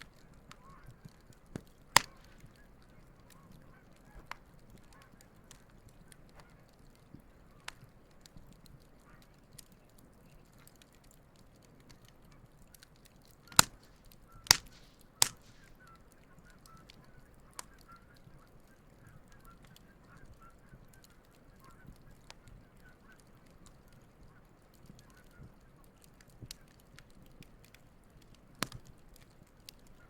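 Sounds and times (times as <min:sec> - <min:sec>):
wood campfire crackling: 0:00.0 - 0:30.0
geese honking: 0:02.0 - 0:05.2.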